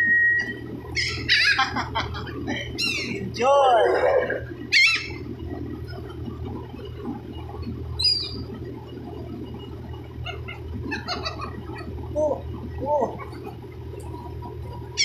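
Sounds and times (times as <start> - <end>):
seagulls calling: 0.4 - 5.3, 10.2 - 12.0.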